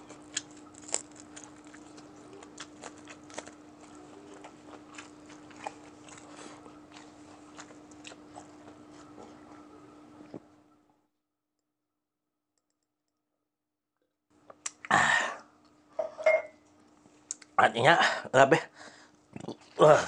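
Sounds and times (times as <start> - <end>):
chewing crispy fried chicken: 0.0 - 10.4.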